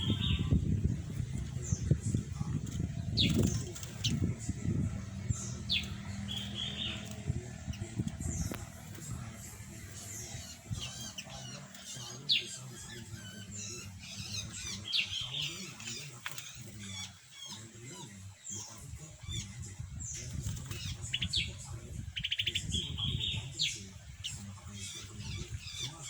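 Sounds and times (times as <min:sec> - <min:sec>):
low steady hum: 0:00.0 - 0:16.8
fast rattling bird trill: 0:00.0 - 0:17.7, 0:18.4 - 0:26.0
small birds chirping: 0:00.0 - 0:26.0.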